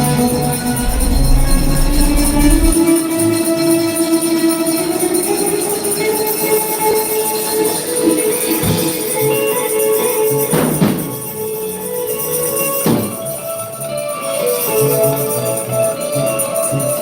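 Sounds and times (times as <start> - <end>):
pulsing bass line: 0.3 - 2.8.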